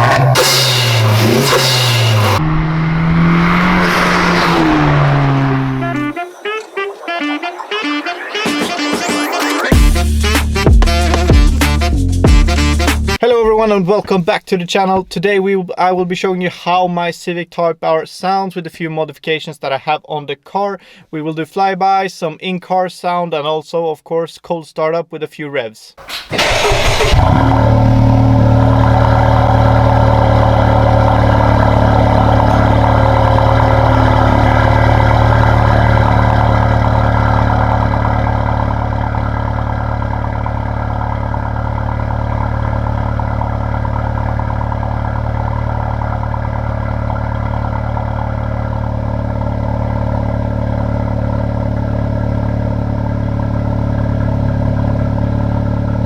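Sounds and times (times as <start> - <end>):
car engine cold start and idle: 26.0 - 56.0.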